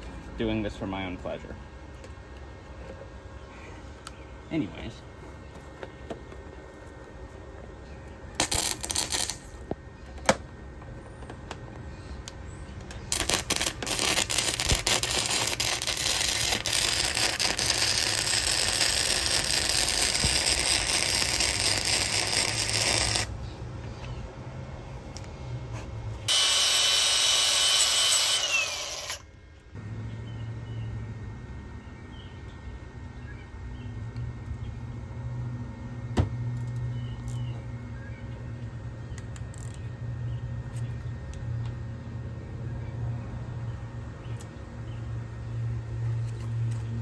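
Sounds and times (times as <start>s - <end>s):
power tool motor running: 13.1s - 23.4s, 26.3s - 30.1s.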